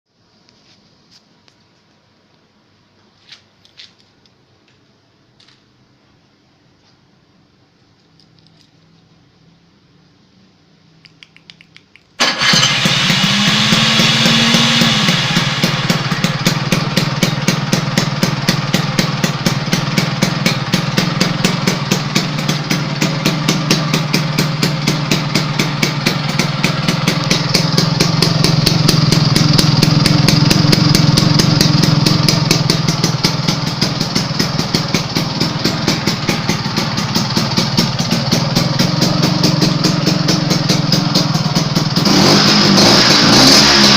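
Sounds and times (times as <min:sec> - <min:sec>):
faint clicks: 0:11.0 - 0:12.2
scooter engine starting and idling: 0:12.2 - 0:43.9.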